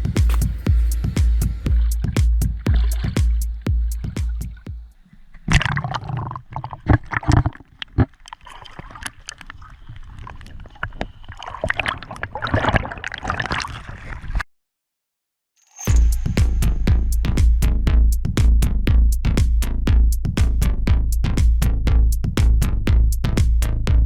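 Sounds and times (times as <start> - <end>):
water sloshing and splashing: 0.1 - 14.4.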